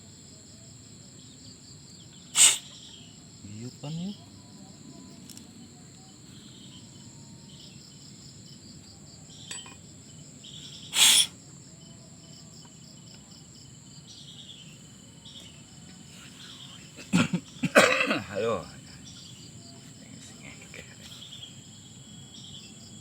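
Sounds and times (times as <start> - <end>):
insects chirping: 0.0 - 23.0
short loud hiss: 2.3 - 2.8, 10.9 - 11.3.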